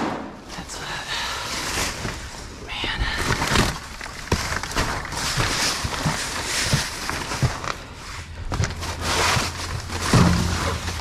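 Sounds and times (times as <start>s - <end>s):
rustling and scraping: 1.4s - 11.0s
junk knocking and clattering: 8.5s - 11.0s.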